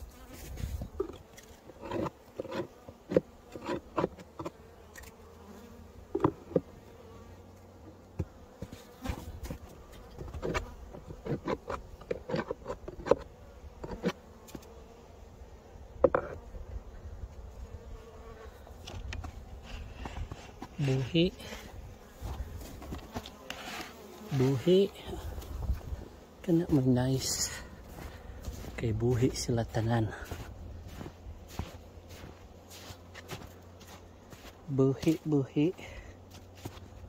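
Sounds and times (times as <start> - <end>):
honeybees buzzing: 0.0 - 37.0
knocks and taps on hive: 6.1 - 6.8, 7.9 - 14.8, 16.0 - 16.4.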